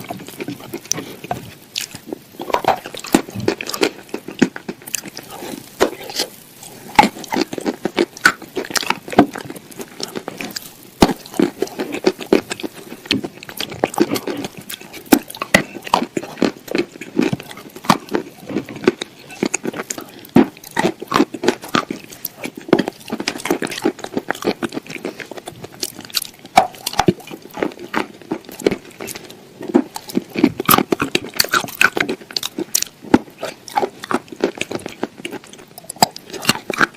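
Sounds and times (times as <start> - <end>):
person chewing crunchy food: 0.0 - 36.9.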